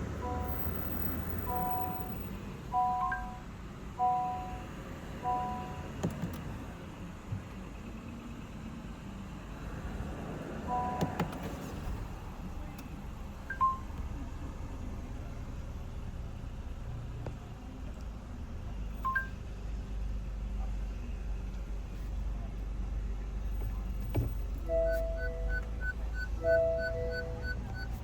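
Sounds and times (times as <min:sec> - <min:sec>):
low engine hum: 0:00.0 - 0:28.0
two-note electronic beeps: 0:00.2 - 0:03.4, 0:24.6 - 0:28.0.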